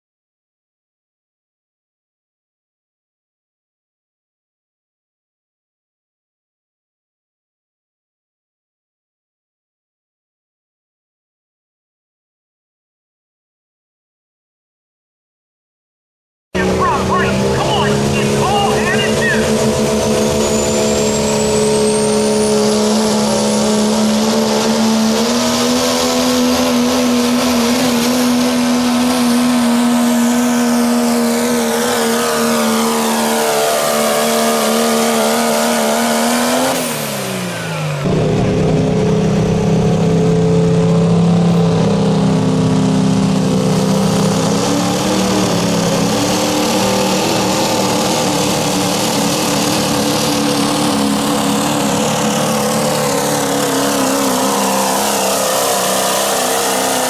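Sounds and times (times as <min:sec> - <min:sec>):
lower rough engine sound: 0:16.6 - 0:57.0
truck engine at full throttle: 0:16.6 - 0:57.0.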